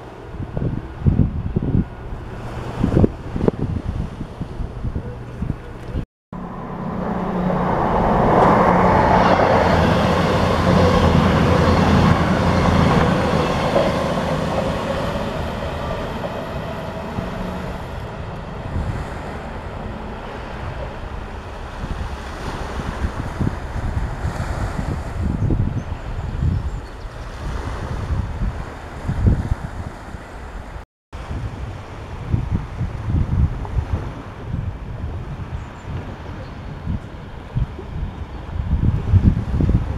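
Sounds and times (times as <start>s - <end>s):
diesel train passing: 0.0s - 5.8s, 6.4s - 30.8s
wind on microphone: 0.0s - 39.9s.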